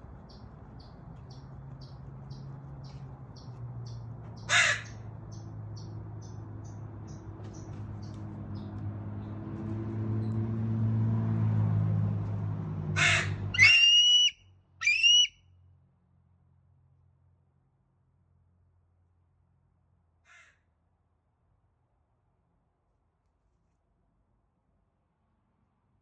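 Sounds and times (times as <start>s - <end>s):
eagle calls: 13.0s - 15.3s.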